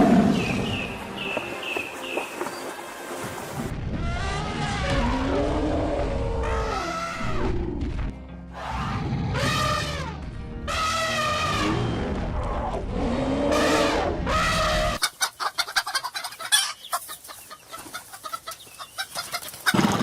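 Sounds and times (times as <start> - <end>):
chickens clucking: 15.0 - 20.0.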